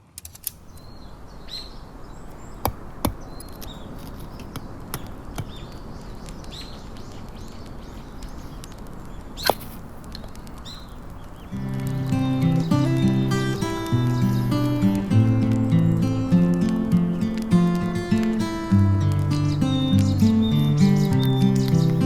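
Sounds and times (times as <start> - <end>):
small birds chirping: 0.5 - 22.0.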